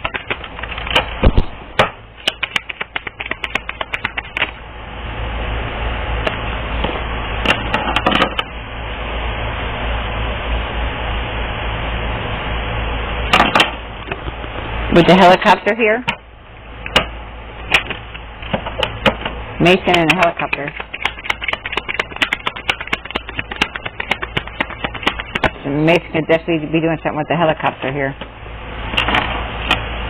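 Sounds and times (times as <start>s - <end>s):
cards being shuffled: 0.0s - 1.5s, 2.2s - 4.6s, 19.6s - 25.6s.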